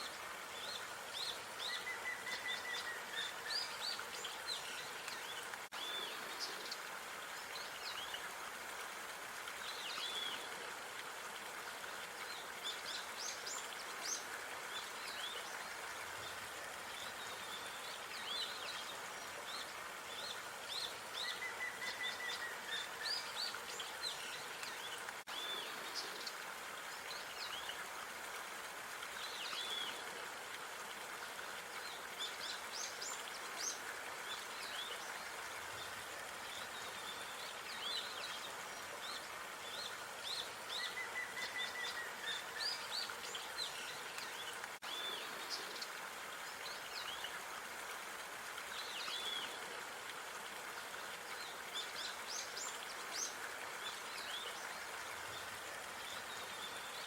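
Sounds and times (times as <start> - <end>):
outdoor background hiss: 0.0 - 57.0.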